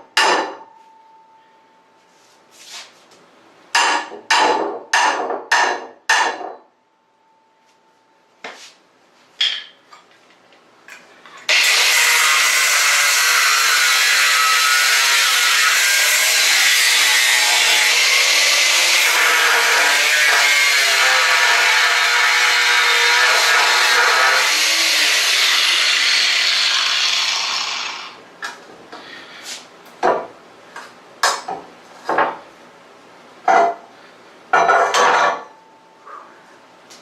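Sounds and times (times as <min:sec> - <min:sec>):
hammer striking steel: 0:00.1 - 0:00.8, 0:03.8 - 0:06.7
loud power tool running: 0:11.5 - 0:28.2.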